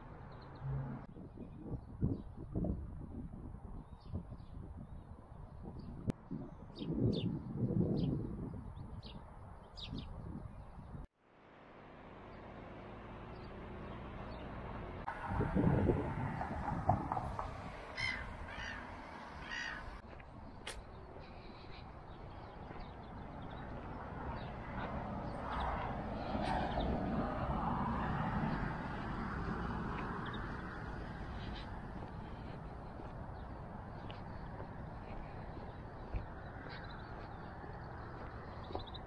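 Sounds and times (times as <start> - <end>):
harsh caw-like bird calls: 17.6 - 20.0, 29.6 - 38.3.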